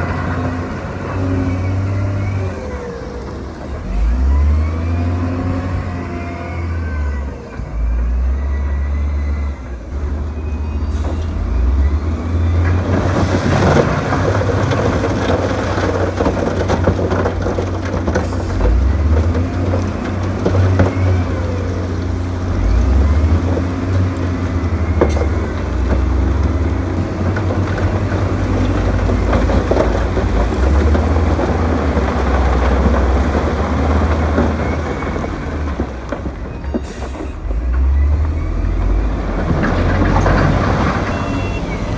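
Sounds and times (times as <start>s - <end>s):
diesel engine under load: 0.0s - 41.9s
dense rattling: 12.7s - 36.9s.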